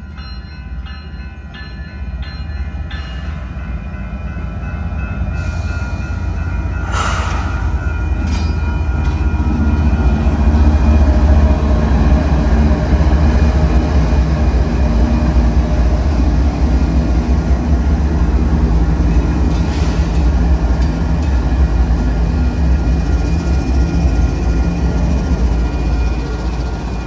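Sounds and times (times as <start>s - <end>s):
freight locomotives rumbling past: 0.0s - 27.0s.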